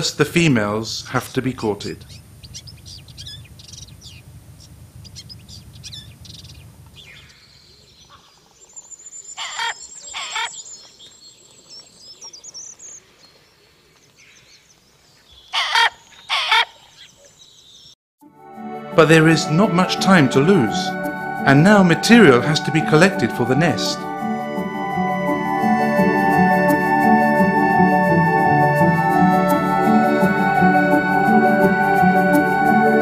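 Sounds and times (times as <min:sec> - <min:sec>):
small birds chirping: 0:00.8 - 0:18.0
loud bird calls: 0:01.8 - 0:18.0.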